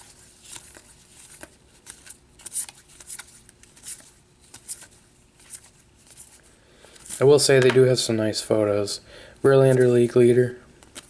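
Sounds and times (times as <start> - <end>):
trading cards flipping: 0.4 - 6.2.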